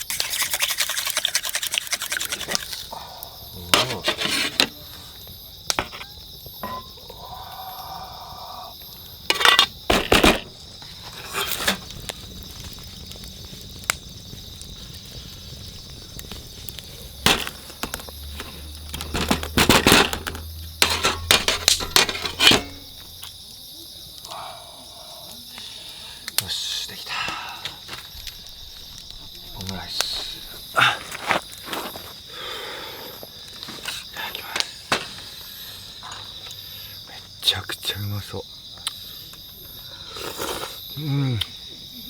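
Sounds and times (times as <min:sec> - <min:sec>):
utensil scraping a pan: 0:00.0 - 0:02.8, 0:03.7 - 0:04.8, 0:05.8 - 0:06.9, 0:09.3 - 0:11.9, 0:17.2 - 0:23.1
insects chirping: 0:00.0 - 0:42.0.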